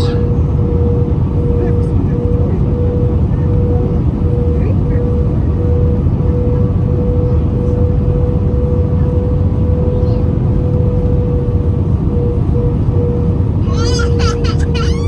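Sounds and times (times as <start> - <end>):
airplane cabin drone: 0.0 - 15.0.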